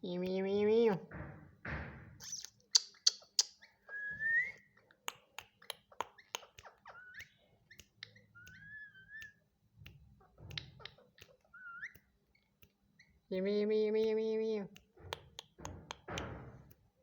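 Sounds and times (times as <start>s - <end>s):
parrot clicking: 2.2s - 3.7s, 4.9s - 13.2s, 14.0s - 16.9s
parrot whistling: 2.2s - 4.7s, 8.0s - 9.4s.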